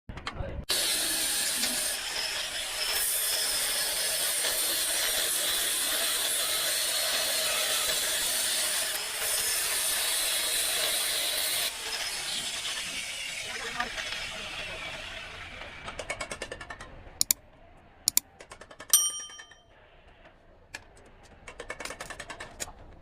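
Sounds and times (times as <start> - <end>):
power grinder grinding metal: 0.7 - 15.3.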